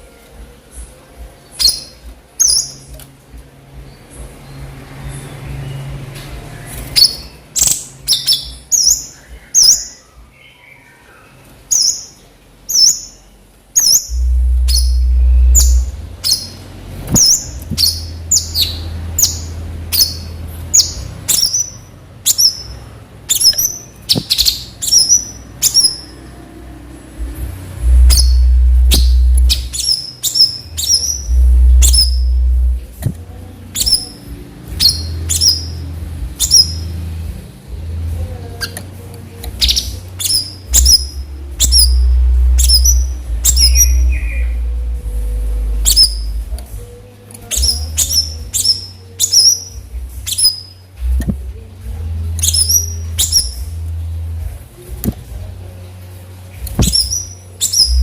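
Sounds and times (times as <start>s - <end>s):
songbird calling sharp high notes: 13.8s - 16.6s, 27.8s - 32.8s
deep low rumble: 14.1s - 21.2s, 26.9s - 29.9s, 30.6s - 38.6s, 40.7s - 48.5s.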